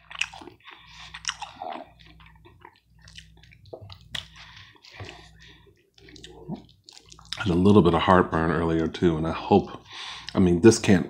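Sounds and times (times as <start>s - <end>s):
person chewing food: 0.0s - 7.6s
low steady hum: 0.0s - 11.0s.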